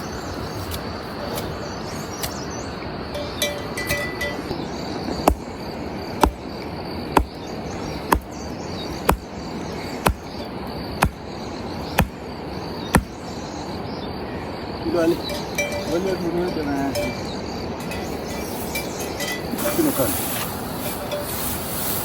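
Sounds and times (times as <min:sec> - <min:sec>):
steady background hiss: 0:00.0 - 0:22.0
sharp knocks: 0:05.3 - 0:05.5, 0:07.2 - 0:07.4, 0:08.1 - 0:08.3, 0:09.1 - 0:09.3, 0:10.0 - 0:10.3, 0:11.0 - 0:11.2, 0:12.0 - 0:12.2, 0:12.9 - 0:13.1.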